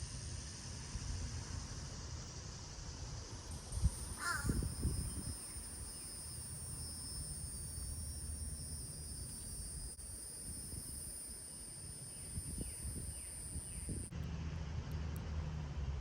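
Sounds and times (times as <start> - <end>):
insects trilling: 3.4 - 14.1
wavering bird call: 4.0 - 6.2.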